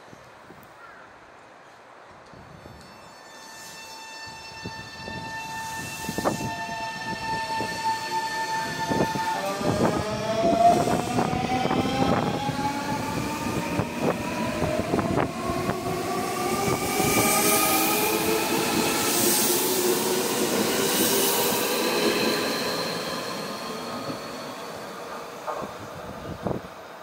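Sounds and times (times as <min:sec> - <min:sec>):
electric train motor whine: 0:04.7 - 0:24.9.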